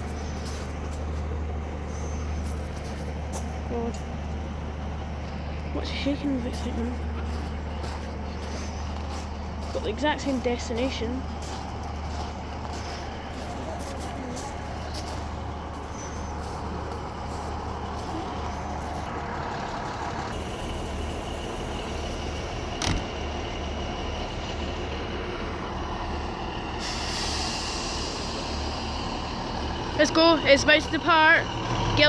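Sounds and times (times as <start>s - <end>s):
diesel train engines idling: 0.0s - 32.0s
hiss: 26.8s - 28.9s.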